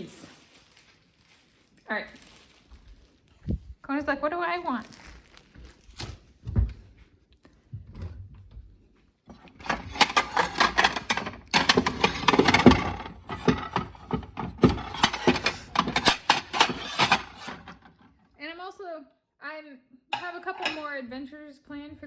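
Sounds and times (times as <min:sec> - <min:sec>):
packaging crackling and rustling: 0:00.0 - 0:03.6, 0:04.6 - 0:06.3, 0:09.5 - 0:17.8.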